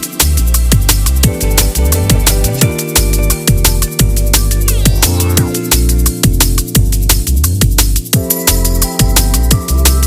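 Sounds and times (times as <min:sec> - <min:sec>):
heavy bass line: 0:00.0 - 0:10.0
kick drum beat: 0:00.0 - 0:10.0
held synth tones: 0:03.2 - 0:05.7.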